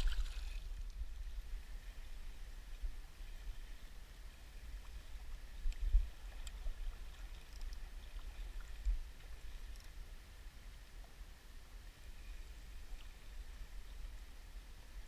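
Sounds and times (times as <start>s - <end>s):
flowing river water: 0.0s - 15.0s
faint ticks: 4.8s - 10.1s.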